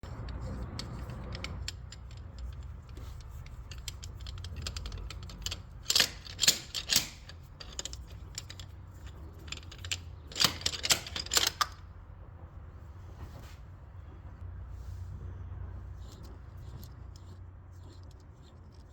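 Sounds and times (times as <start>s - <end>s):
metal tools clanking on engine: 0.0s - 11.9s.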